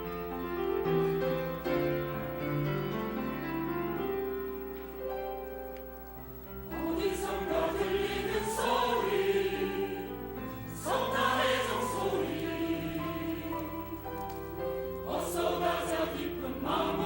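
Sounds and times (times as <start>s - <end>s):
church choir singing: 6.6s - 17.0s.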